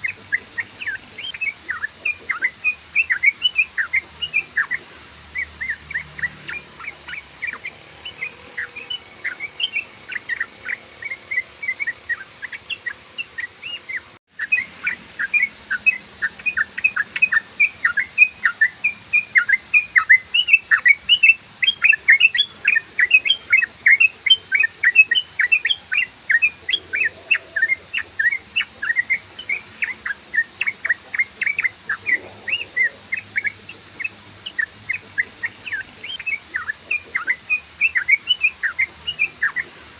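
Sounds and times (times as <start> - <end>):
bulbul chattering song: 0.0 - 39.9.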